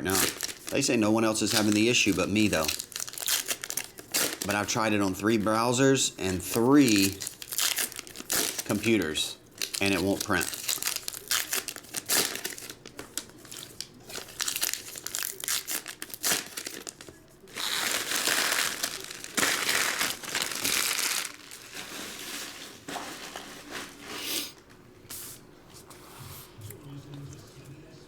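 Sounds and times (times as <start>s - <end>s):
wrappers being torn and crinkled: 0.0s - 4.7s, 6.6s - 24.1s.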